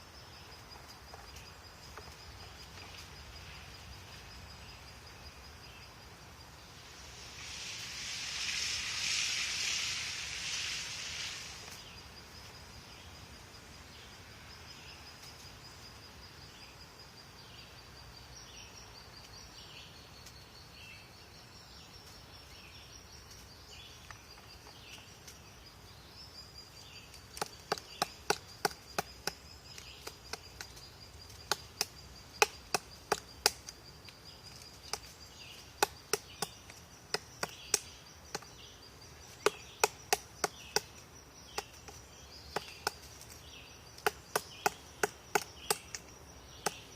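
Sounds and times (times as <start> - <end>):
woodpecker pecking at wood: 27.3 - 29.4.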